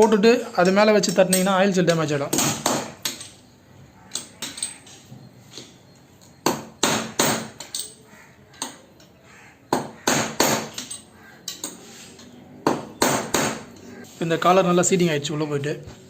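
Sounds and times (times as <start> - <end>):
hammer tapping on metal: 9.7 - 11.0, 12.6 - 13.7.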